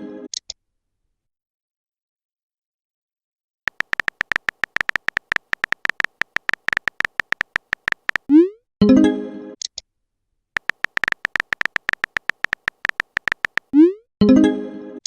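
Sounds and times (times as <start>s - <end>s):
phone keyboard typing clicks: 3.7s - 8.3s, 10.6s - 13.8s.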